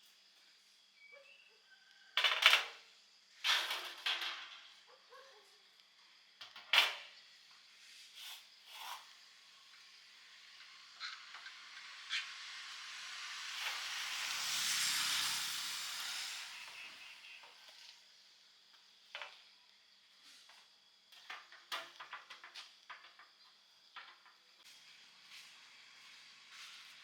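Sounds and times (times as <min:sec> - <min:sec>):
hiss of sizzling or steam: 0:06.0 - 0:19.0, 0:24.6 - 0:27.0.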